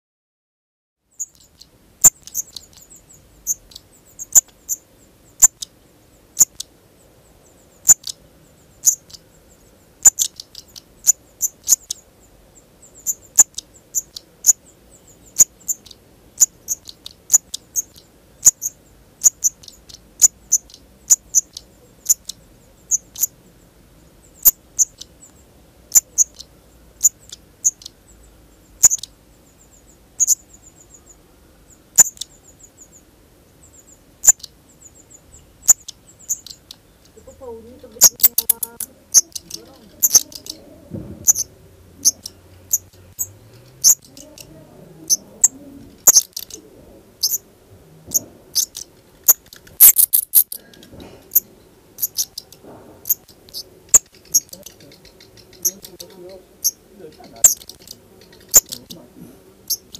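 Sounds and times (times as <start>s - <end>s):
thin high bird trills: 1.1s - 5.8s, 7.3s - 23.4s, 24.3s - 47.5s, 48.1s - 59.0s, 59.6s - 59.9s
sharp high bird ticking calls: 1.1s - 59.9s.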